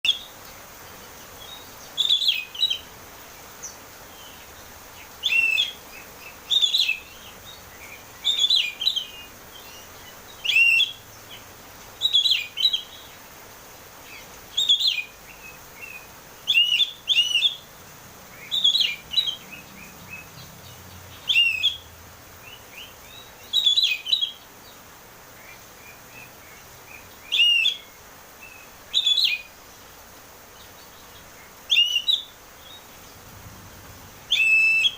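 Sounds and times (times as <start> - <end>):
bird singing whistled phrases: 5.2 - 5.8, 8.2 - 11.0, 14.6 - 17.6, 18.4 - 19.4, 21.2 - 21.8, 22.5 - 24.4, 26.9 - 29.5, 31.7 - 32.8, 34.3 - 34.9.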